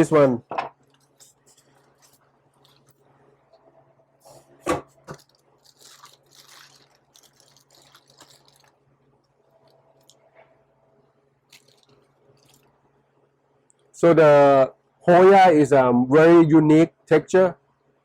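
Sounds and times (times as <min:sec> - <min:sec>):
faint steady hum: 0:00.0 - 0:18.0
rustling and crinkling: 0:00.7 - 0:10.6, 0:11.5 - 0:12.8.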